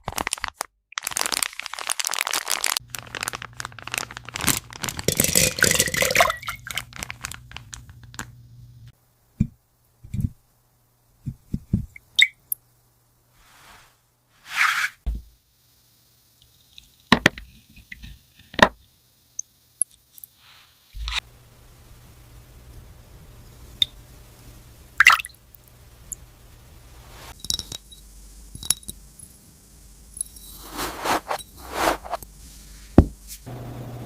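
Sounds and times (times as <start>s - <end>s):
toy packaging crinkling and tearing: 0.0s - 5.8s, 6.4s - 8.3s.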